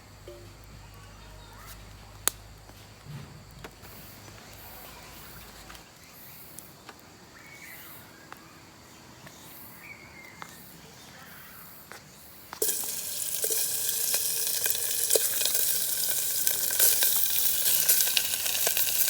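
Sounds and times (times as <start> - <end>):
insects: 0.0 - 19.0
faint bird chirps: 3.9 - 12.4.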